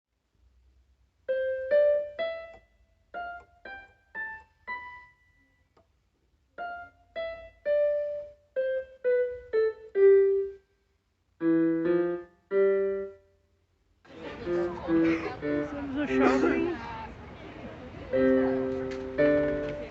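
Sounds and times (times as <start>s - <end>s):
piano melody: 1.3s - 5.6s, 6.6s - 10.7s, 11.4s - 13.4s, 14.1s - 17.0s, 18.0s - 19.9s.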